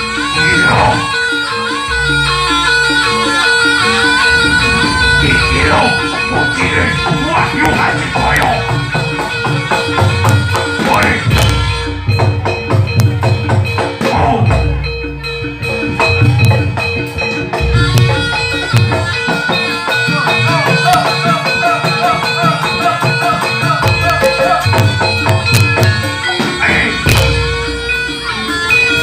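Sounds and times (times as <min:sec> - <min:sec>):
drums keeping a steady beat: 0:00.0 - 0:29.0
struck pitched metal percussion: 0:00.0 - 0:29.0
held reed-like tone: 0:00.3 - 0:09.2.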